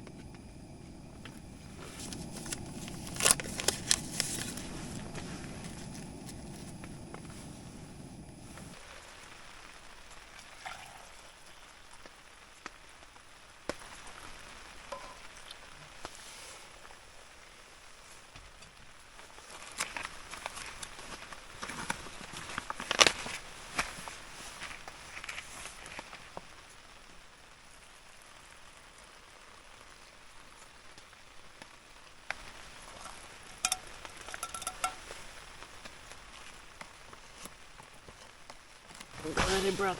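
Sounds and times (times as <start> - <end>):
low rumble: 0.0 - 8.9
rain falling steadily: 0.0 - 39.9
drops ticking: 32.3 - 35.4
sharp metallic clinks: 33.6 - 35.1.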